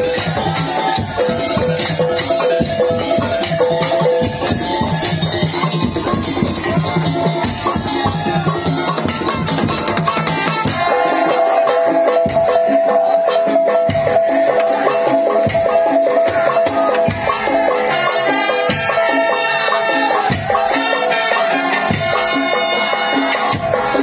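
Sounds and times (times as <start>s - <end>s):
fast drum and percussion rhythm: 0.0s - 24.0s.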